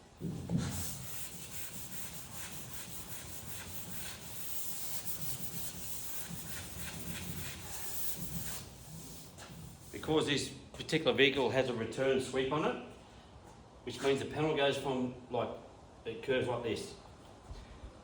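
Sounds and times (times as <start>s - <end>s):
hand sanding block strokes: 0.2s - 10.3s.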